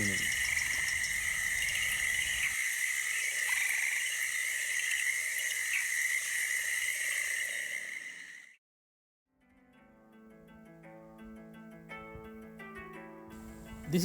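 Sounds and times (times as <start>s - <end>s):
insects and frogs calling: 0.0s - 8.6s.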